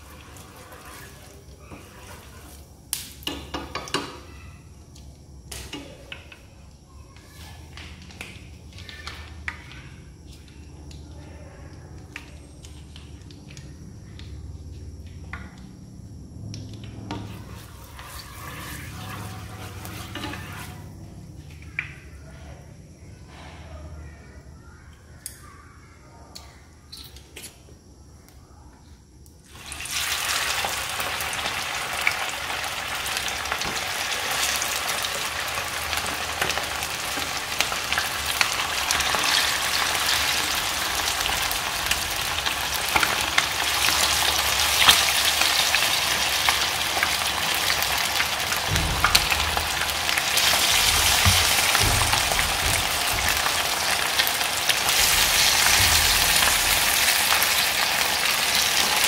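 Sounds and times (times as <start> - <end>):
chicken frying in hot oil: 0.0 - 4.5, 7.4 - 9.9, 16.9 - 20.9, 29.4 - 59.0.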